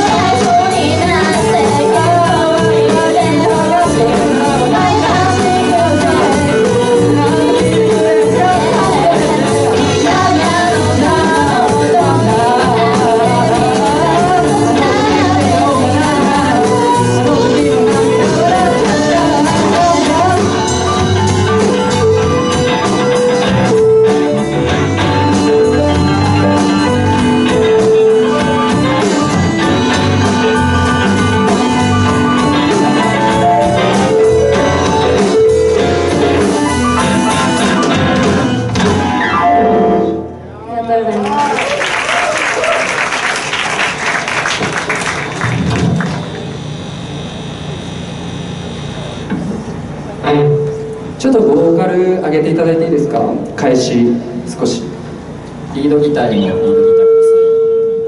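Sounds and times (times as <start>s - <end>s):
person singing: 0.0s - 24.2s
live band playing: 0.0s - 58.0s.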